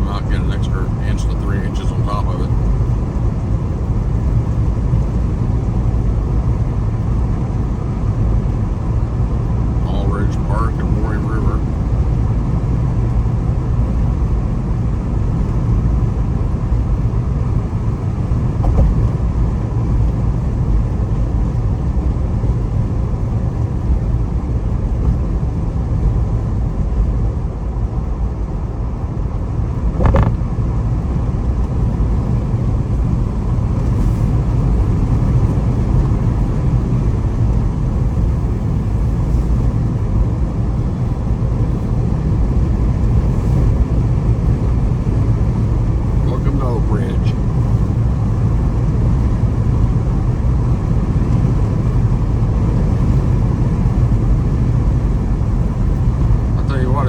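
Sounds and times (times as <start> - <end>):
engine and road noise in cabin: 0.0 - 57.0
sharp knock: 30.0 - 30.4.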